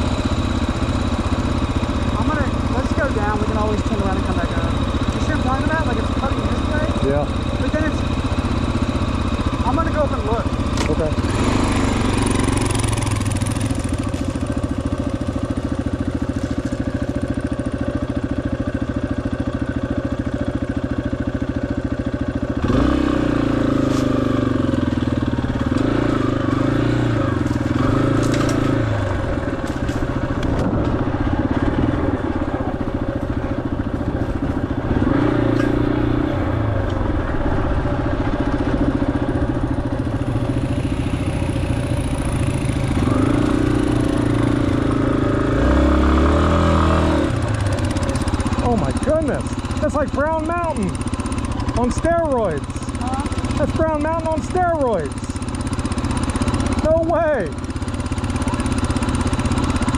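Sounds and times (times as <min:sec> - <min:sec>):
motorcycle engine running: 0:00.0 - 0:59.9
gravel crunching under tyres: 0:10.6 - 0:17.8, 0:23.6 - 0:44.5.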